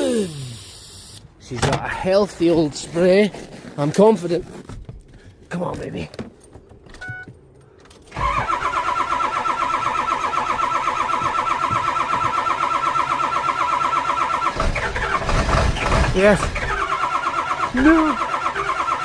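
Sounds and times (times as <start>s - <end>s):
diesel engine cranking: 8.0s - 19.0s.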